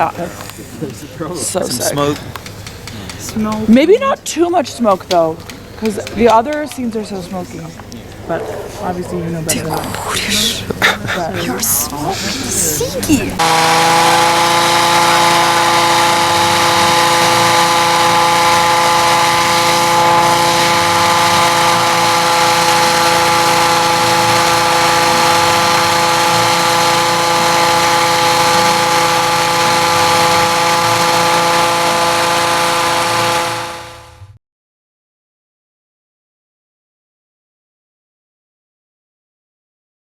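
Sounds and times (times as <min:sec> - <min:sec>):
machine motor whining: 0:11.7 - 0:34.3.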